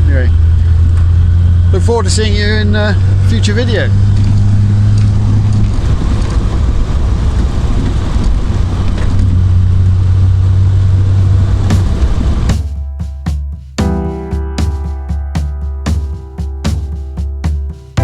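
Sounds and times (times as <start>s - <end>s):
wind noise: 0.0s - 13.0s
road noise: 0.0s - 13.8s
car engine running: 0.0s - 13.9s.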